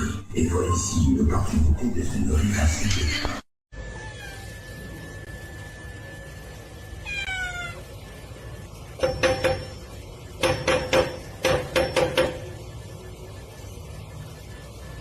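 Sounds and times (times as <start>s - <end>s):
cat meowing: 3.9s - 4.6s, 7.0s - 7.9s.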